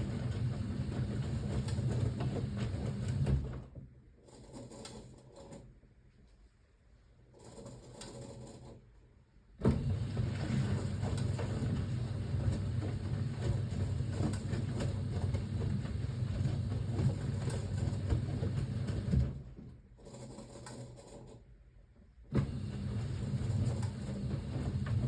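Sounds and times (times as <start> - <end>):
washing machine motor hum: 0.0 - 3.8, 9.6 - 19.8, 22.3 - 25.0
laundry swishing and knocking: 9.6 - 19.5.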